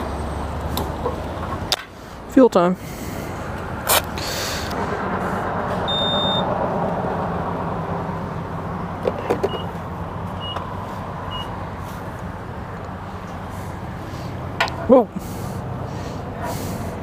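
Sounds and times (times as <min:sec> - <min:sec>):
short electronic beeps: 0:05.9 - 0:06.5, 0:11.3 - 0:11.5.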